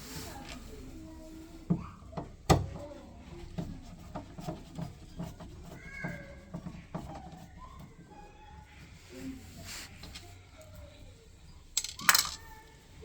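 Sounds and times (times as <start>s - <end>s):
clicks and knocks of hard parts: 11.8s - 12.4s.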